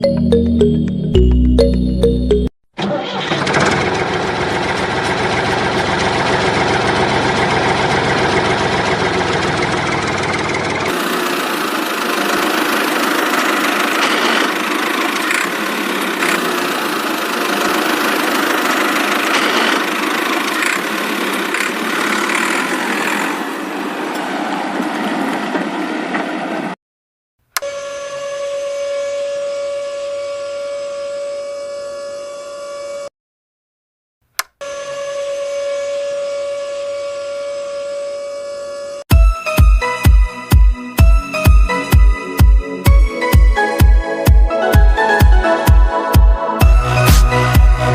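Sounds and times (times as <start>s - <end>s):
drilling rig mechanical drone: 3.2s - 25.0s.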